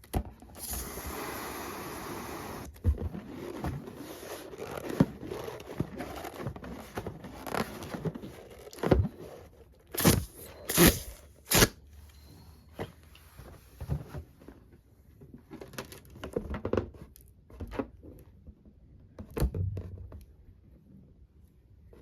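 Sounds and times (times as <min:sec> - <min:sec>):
packaging crinkling and tearing: 0:10.0 - 0:11.8.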